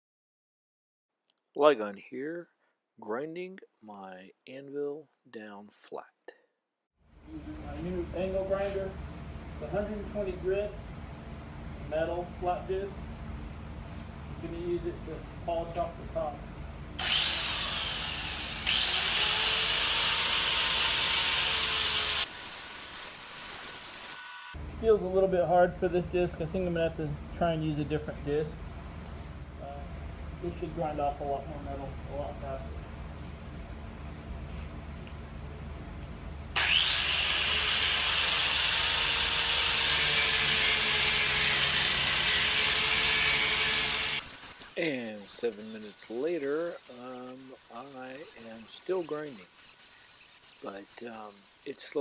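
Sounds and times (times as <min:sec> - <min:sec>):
angle grinder grinding steel: 0:17.0 - 0:24.6, 0:36.6 - 0:52.0.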